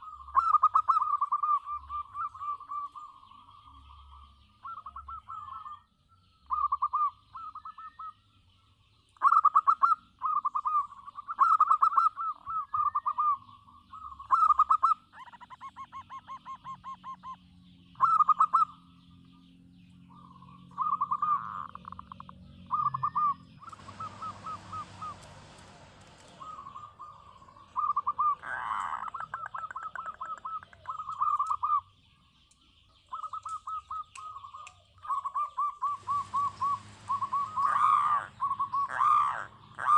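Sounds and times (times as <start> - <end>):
dove cooing: 0.0 - 3.3, 4.1 - 5.8, 6.5 - 8.2, 9.2 - 17.4, 20.1 - 31.9, 33.1 - 39.9
small birds chirping: 0.0 - 39.9
hiss: 23.7 - 26.8.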